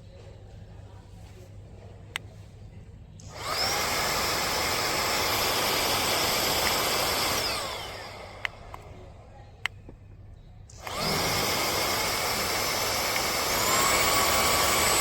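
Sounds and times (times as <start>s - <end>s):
handheld vacuum cleaner motor whine: 3.2s - 8.9s, 10.7s - 15.0s.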